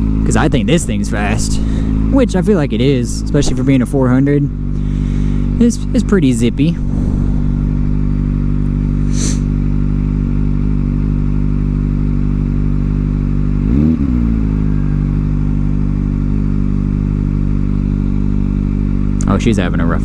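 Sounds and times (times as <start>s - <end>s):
motorcycle engine running: 10.6s - 20.0s.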